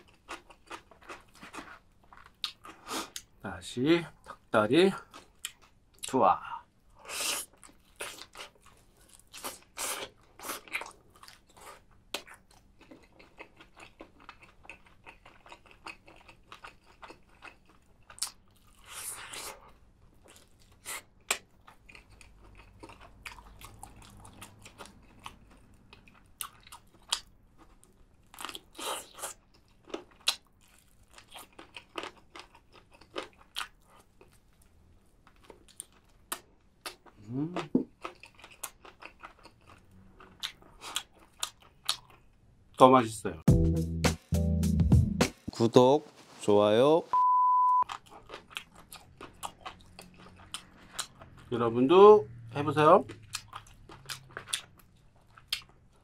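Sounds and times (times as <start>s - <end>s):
crunchy biting and chewing: 7.0s - 34.4s, 35.3s - 42.4s, 47.9s - 51.5s, 53.0s - 56.0s.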